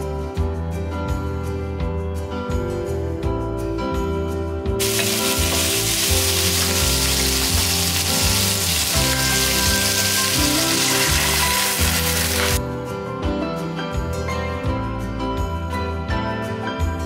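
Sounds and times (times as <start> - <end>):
meat sizzling in a wok: 4.8 - 12.6.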